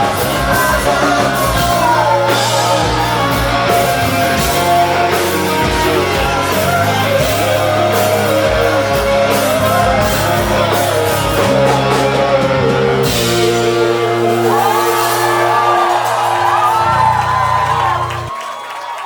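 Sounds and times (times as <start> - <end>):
electric guitar bending notes: 0.0 - 18.3
live rock band playing: 0.0 - 18.3
person singing: 0.0 - 18.3
drum kit: 0.0 - 18.4.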